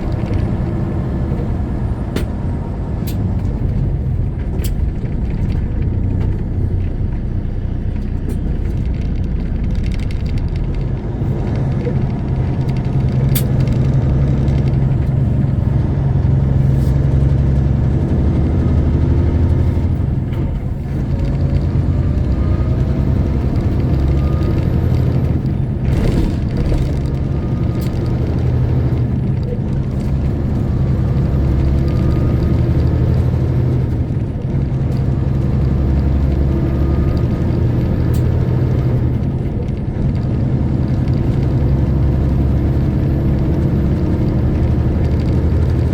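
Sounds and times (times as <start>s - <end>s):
truck diesel engine droning: 0.0s - 45.9s.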